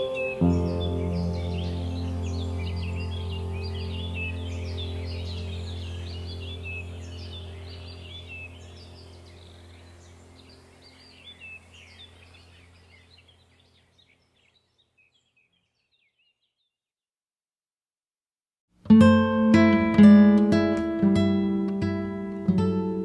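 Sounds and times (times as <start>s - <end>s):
steady low hum: 0.0s - 13.6s
small birds chirping and twittering: 0.0s - 16.8s.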